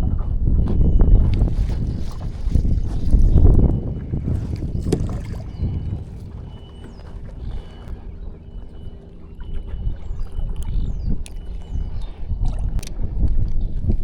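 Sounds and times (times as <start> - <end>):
water around kayak: 0.0 - 14.0
wind on microphone: 0.0 - 14.0.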